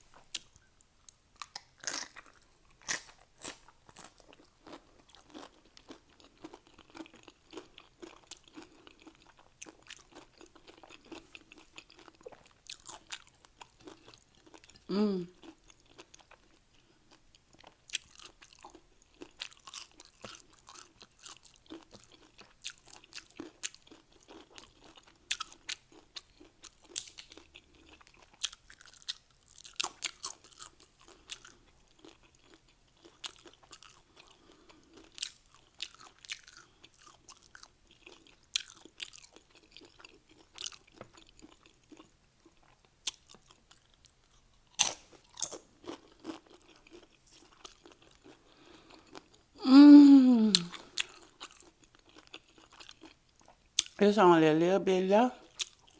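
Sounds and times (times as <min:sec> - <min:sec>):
chips crunching: 0:01.4 - 0:09.1
wet chewing: 0:17.5 - 0:43.9.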